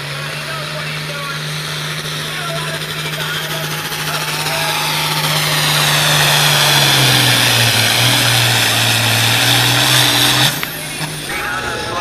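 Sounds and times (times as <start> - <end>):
tractor engine at full throttle: 0.0 - 12.0
high whine: 1.7 - 12.0.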